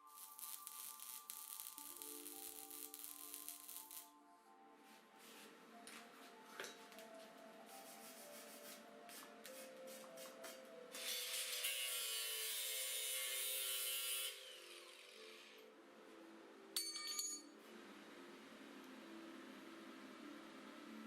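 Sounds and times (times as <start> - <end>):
background music: 0.0 - 21.0
loud hissing tool: 11.0 - 15.6.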